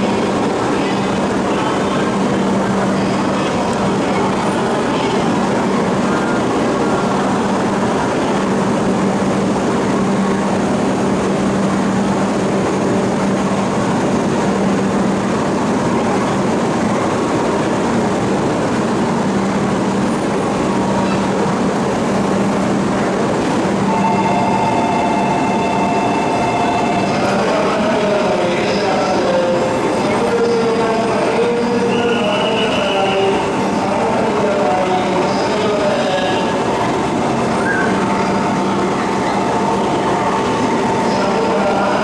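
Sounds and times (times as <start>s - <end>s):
train rumbling on rails: 0.0s - 42.0s
steady higher tones: 23.7s - 30.0s.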